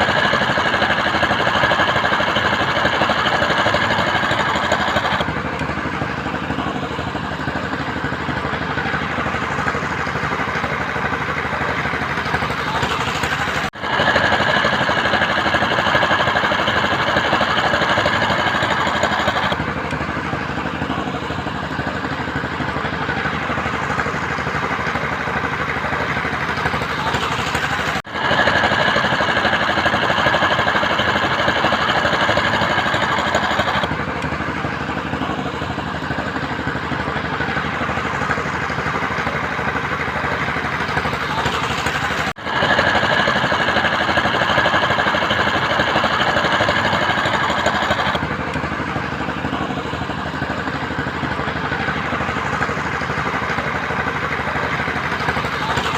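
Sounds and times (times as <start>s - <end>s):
construction machinery engine running: 0.0s - 55.9s.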